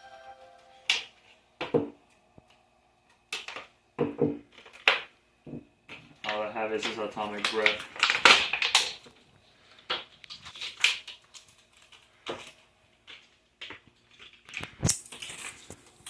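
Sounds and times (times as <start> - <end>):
plastic packaging crinkling: 4.4 - 5.1, 6.1 - 16.0
plastic parts clicking and rustling: 4.4 - 5.1, 5.9 - 16.0.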